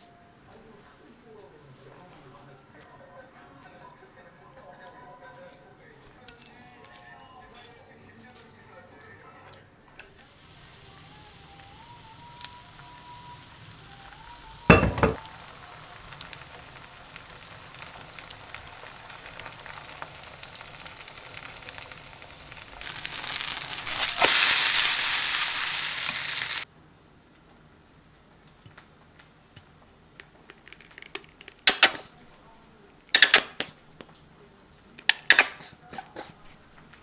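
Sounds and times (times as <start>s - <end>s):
batter sizzling in hot oil: 10.0s - 26.7s.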